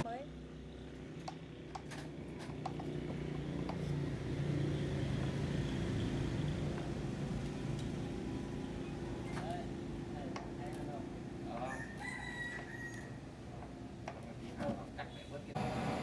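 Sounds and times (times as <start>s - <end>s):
motor humming: 15.6s - 16.0s.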